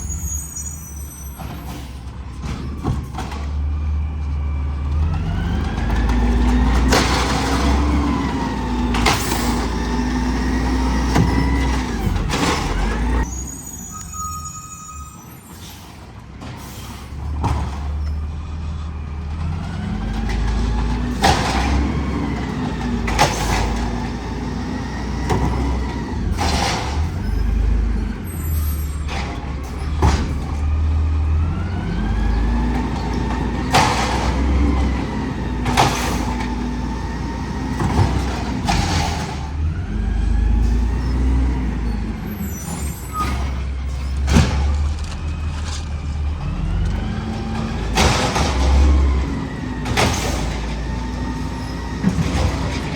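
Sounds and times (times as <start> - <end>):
garbage truck engine revving: 0.0 - 13.6, 15.7 - 52.9
bangs and clanks of carts: 0.0 - 52.9.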